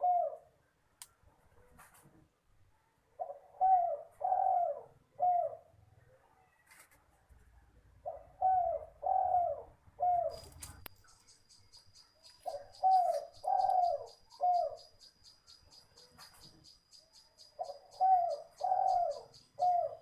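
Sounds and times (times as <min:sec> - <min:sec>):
dove cooing: 0:00.0 - 0:00.6, 0:03.2 - 0:05.8, 0:08.0 - 0:10.8, 0:12.4 - 0:16.6, 0:17.3 - 0:20.0.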